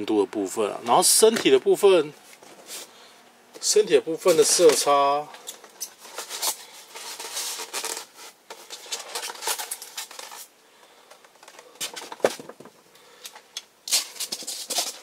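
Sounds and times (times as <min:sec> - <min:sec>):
plastic toy rubbing and rustling: 0:04.2 - 0:10.5, 0:13.9 - 0:15.0.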